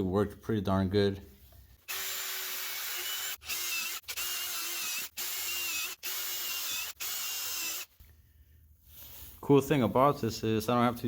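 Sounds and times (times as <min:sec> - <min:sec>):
impact driver whining: 0:01.9 - 0:08.0.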